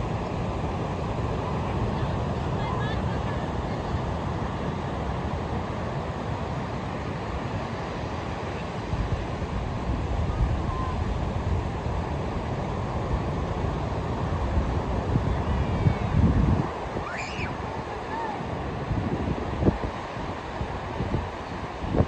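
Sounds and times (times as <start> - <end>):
ocean surf washing ashore: 0.0 - 22.0
wind buffeting microphone: 7.1 - 22.0.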